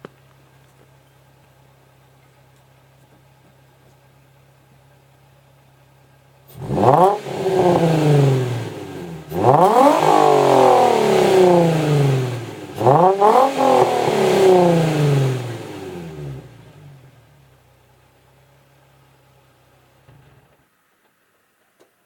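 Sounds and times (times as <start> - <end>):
car engine revving and idling: 6.4 - 20.6.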